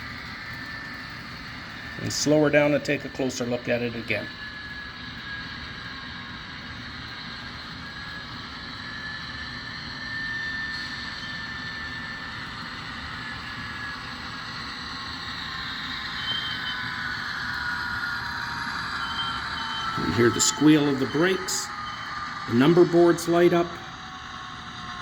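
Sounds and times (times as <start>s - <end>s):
model locomotive diesel sounds: 0.0s - 25.0s
brake squeal: 10.3s - 11.9s, 13.2s - 23.9s.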